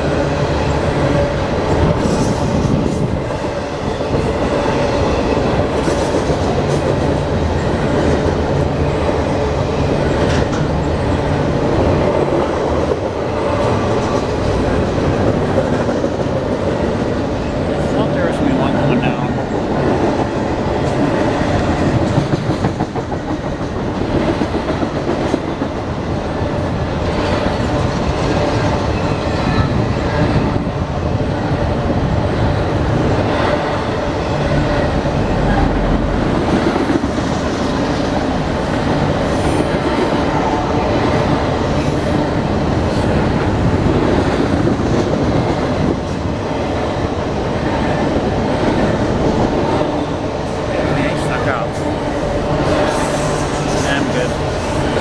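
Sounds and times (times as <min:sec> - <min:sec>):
train wheels clacking: 0:00.0 - 0:30.7, 0:32.7 - 0:55.0
railcars rumbling: 0:00.0 - 0:55.0.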